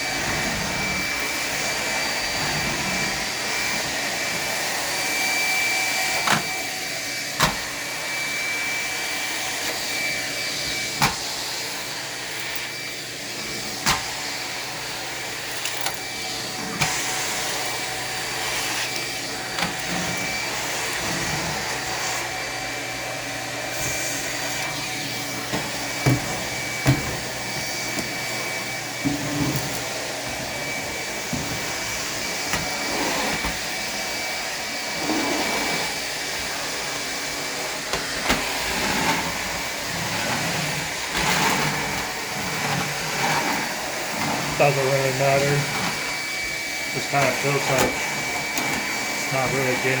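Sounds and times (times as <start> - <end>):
vacuum whining air rush: 0.0 - 50.0
vacuum tool knocks: 25.5 - 28.2.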